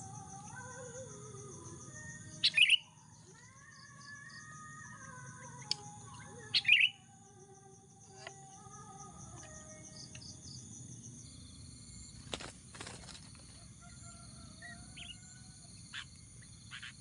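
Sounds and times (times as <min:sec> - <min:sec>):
insects buzzing: 0:00.0 - 0:17.0
birds chirping: 0:02.0 - 0:07.1, 0:12.0 - 0:17.0.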